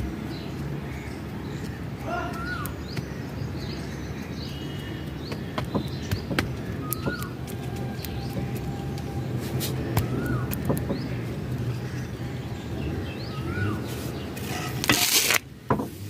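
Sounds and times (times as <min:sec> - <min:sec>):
bird calling: 0:00.4 - 0:14.8
rustle of handling a pot: 0:13.9 - 0:16.0.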